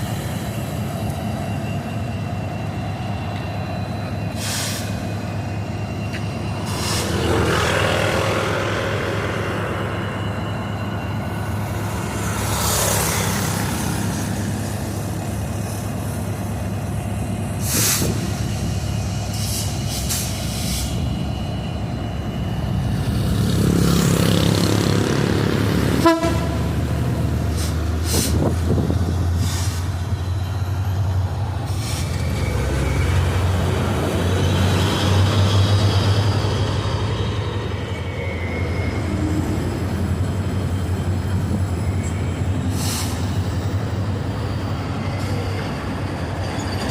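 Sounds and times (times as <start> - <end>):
train wagons rumbling on rails: 0.0 - 46.9.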